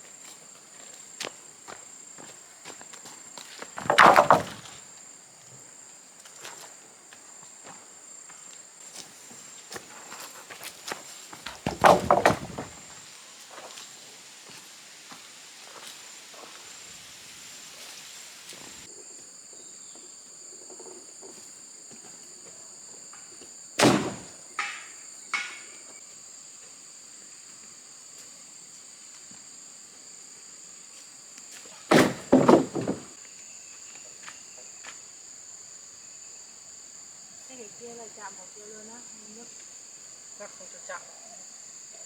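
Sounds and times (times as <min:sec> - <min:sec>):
insects chirring: 0:00.0 - 0:42.0
loud knocks: 0:03.8 - 0:04.6, 0:11.7 - 0:12.8, 0:31.9 - 0:33.1.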